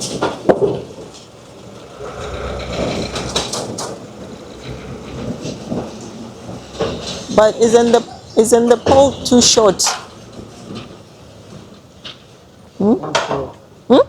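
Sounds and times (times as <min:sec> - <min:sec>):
truck engine running: 0:01.1 - 0:11.4.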